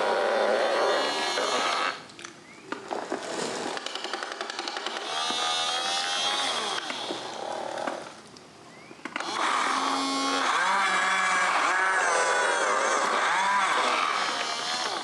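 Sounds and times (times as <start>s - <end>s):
small electric motors whining: 4.8s - 8.0s, 9.1s - 15.0s.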